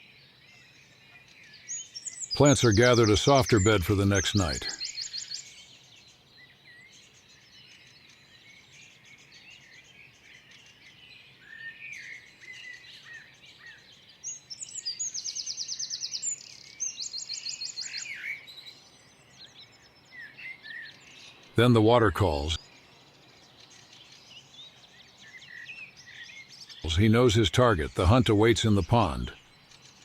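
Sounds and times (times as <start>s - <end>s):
songbirds chirping and whistling: 0.0s - 30.0s
high rapid bird trill: 2.3s - 4.8s, 21.6s - 22.6s, 26.8s - 29.4s.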